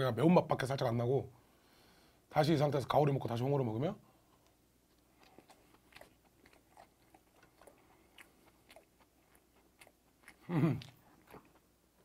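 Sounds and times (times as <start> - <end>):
person chewing: 4.4 - 12.0
person humming mm: 10.4 - 11.0.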